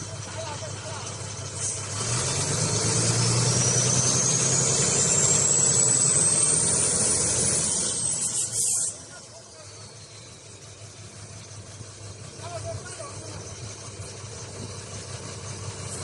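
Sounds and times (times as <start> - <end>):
diesel truck engine running: 0.0 - 16.0
thin high whistle: 7.8 - 10.9.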